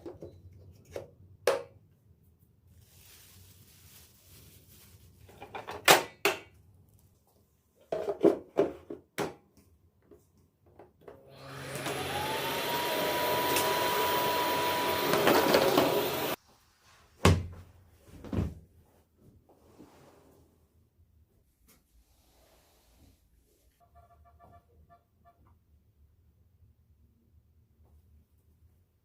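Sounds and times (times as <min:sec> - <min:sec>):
appliance motor whine: 0:11.1 - 0:16.4.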